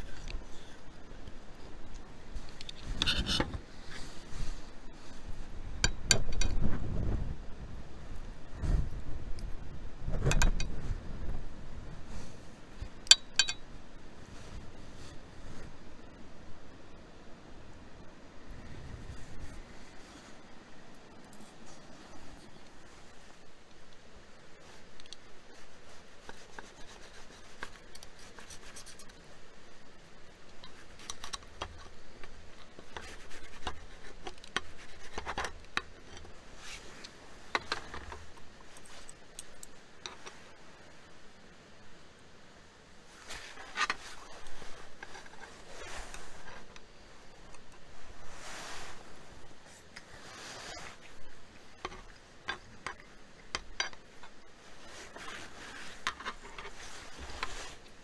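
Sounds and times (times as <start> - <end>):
soft rustling: 0.0 - 5.8, 6.5 - 13.0, 13.6 - 41.8, 43.0 - 58.0
objects clicking and scraping: 1.8 - 4.6, 5.2 - 6.8, 30.5 - 40.5, 43.2 - 47.8, 48.5 - 58.0.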